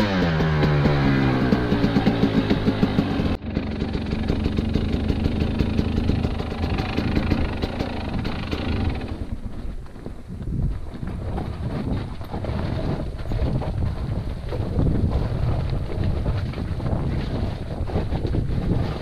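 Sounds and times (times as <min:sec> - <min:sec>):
motorcycle engine running: 0:00.0 - 0:19.0
wind on microphone: 0:00.0 - 0:19.0.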